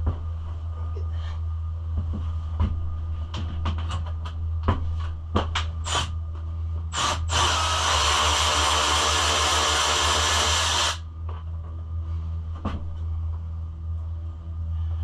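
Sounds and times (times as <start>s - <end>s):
low hum: 0.0s - 15.0s
hissing power tool: 5.9s - 6.1s, 6.9s - 11.0s.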